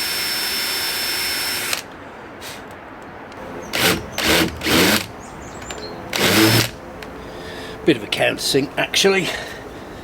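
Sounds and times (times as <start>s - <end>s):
power drill boring into wood: 0.0s - 1.9s, 3.8s - 5.1s, 6.2s - 6.8s.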